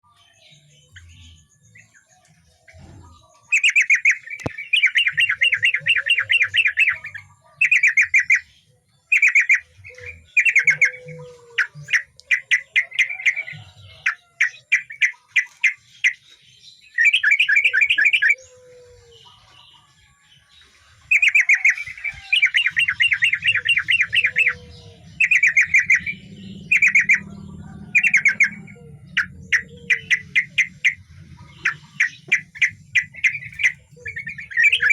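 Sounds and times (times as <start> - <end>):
bulbul singing rapid chattering: 3.4 - 8.5, 9.1 - 16.2, 21.1 - 34.9.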